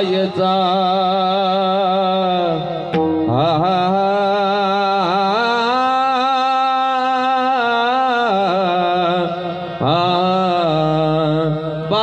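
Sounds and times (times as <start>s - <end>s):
person singing devotional song: 0.0s - 12.0s.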